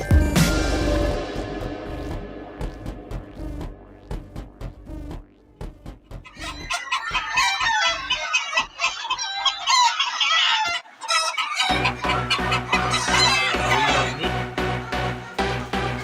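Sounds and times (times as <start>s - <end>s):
electronic music with heavy beat: 0.0s - 7.9s, 11.7s - 16.0s
chickens clucking: 5.6s - 16.0s.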